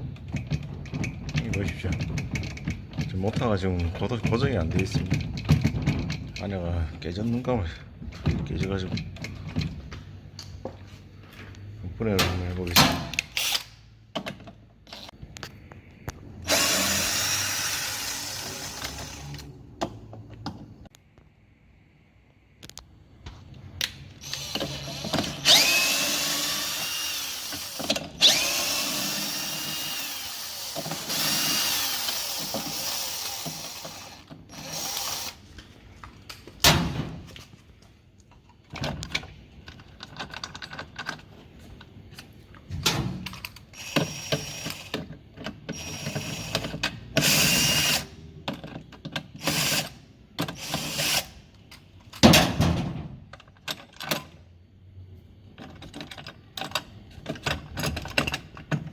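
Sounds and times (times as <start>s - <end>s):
tools and parts clicking and knocking: 0.0s - 6.9s, 8.0s - 10.8s, 11.6s - 15.5s, 23.8s - 35.4s, 36.0s - 54.6s, 55.3s - 58.9s
power drill whining: 16.4s - 19.5s, 24.2s - 35.4s, 45.7s - 48.1s.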